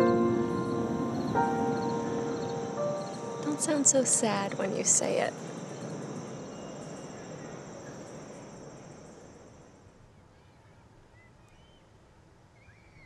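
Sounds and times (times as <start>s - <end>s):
crickets trilling: 0.0s - 10.0s
soft background hiss: 0.0s - 13.0s.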